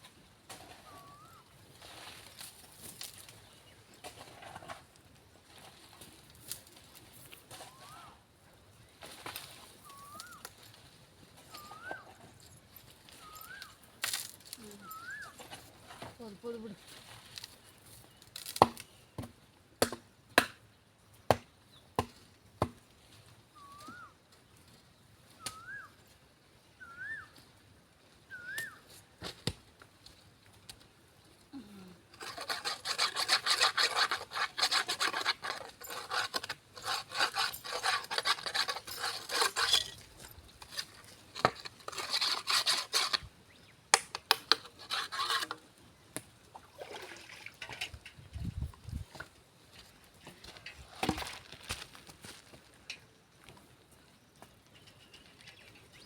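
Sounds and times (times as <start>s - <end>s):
rough scraping and rubbing: 32.1s - 43.4s, 44.4s - 45.7s.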